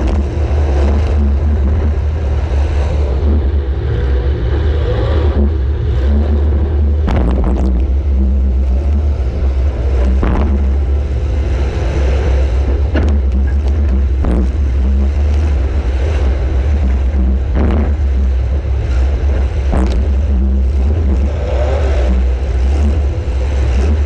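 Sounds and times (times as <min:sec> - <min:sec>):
car engine rumbling under load: 0:00.0 - 0:24.0
sharp knocks: 0:07.0 - 0:08.0, 0:10.0 - 0:11.0, 0:19.0 - 0:21.3.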